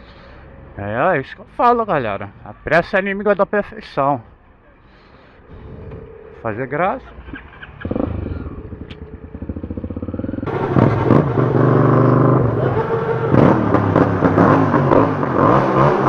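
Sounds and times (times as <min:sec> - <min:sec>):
motorcycle idling: 0:04.4 - 0:15.6
motorcycle engine revving: 0:05.5 - 0:16.0.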